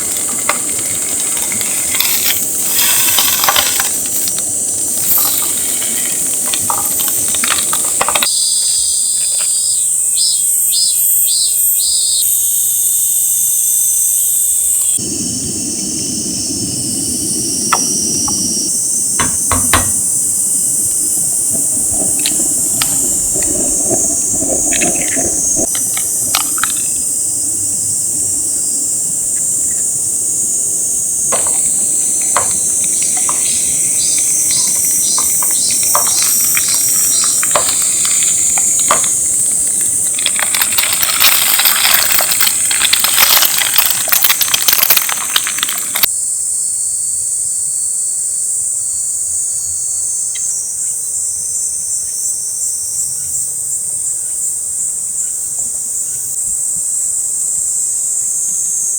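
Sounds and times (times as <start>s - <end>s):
crackling and clinking: 0.0s - 8.4s, 19.2s - 27.3s, 31.2s - 46.1s
insects chorus: 0.0s - 58.9s.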